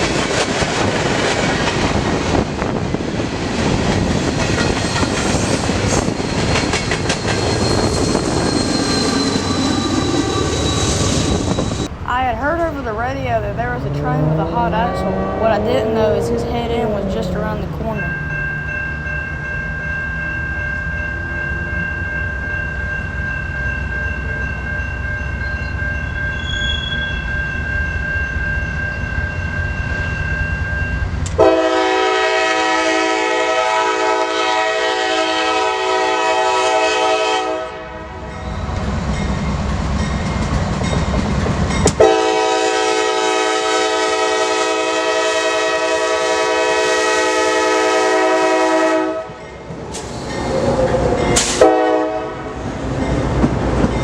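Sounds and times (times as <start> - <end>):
diesel locomotive rumbling: 0.0 - 54.0
train air horn blasts: 31.4 - 38.2, 42.0 - 49.4, 51.4 - 52.6.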